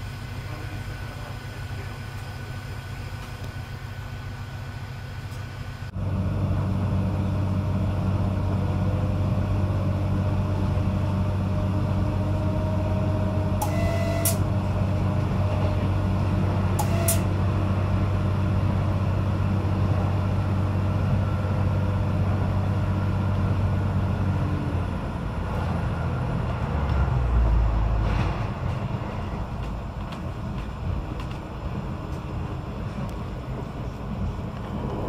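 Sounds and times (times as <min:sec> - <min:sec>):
train engine drone: 0:00.0 - 0:35.0
deep rumble: 0:32.4 - 0:35.0.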